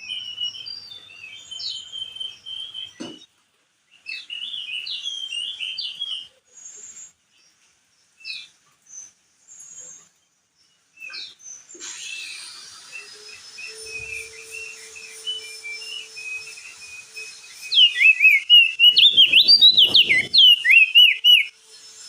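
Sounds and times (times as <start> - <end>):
bird chirping: 0.0 - 21.8
long high whistle: 11.9 - 21.5
bird chattering: 17.8 - 21.5.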